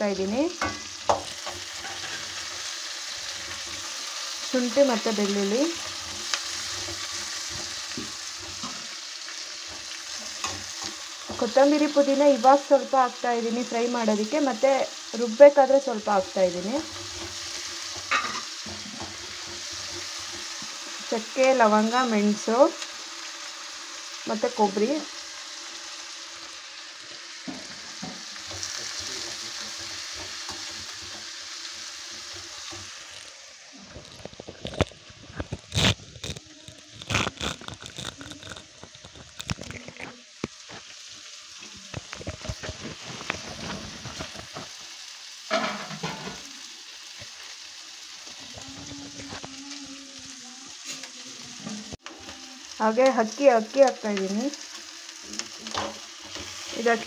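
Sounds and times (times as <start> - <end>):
vegetables sizzling in a pan: 0.0 - 57.0
metal spatula scraping a pan: 0.6 - 12.8, 16.0 - 23.4, 27.5 - 40.8, 45.5 - 46.4.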